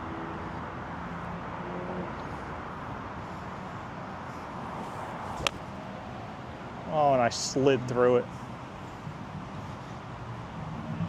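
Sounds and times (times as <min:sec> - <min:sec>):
golf club striking ball: 0:05.4 - 0:05.8.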